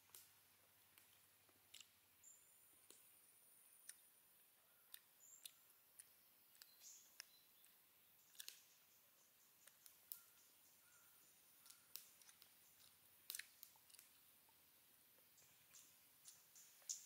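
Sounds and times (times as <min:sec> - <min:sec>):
mouth clicks and smacks chewing: 0:00.9 - 0:03.1, 0:03.7 - 0:04.2, 0:04.8 - 0:08.8, 0:09.6 - 0:10.4, 0:11.6 - 0:14.6.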